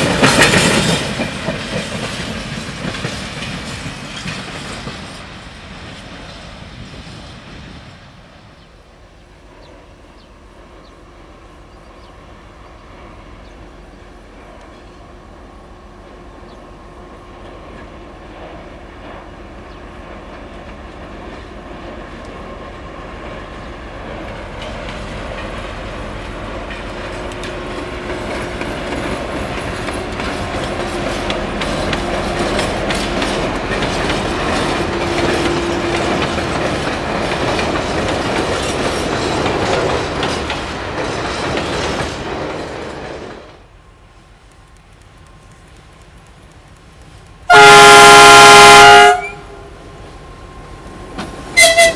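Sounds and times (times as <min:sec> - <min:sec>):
wheels clicking over rail joints: 0:00.0 - 0:06.5, 0:17.4 - 0:43.7
diesel locomotive engine: 0:00.0 - 0:51.9.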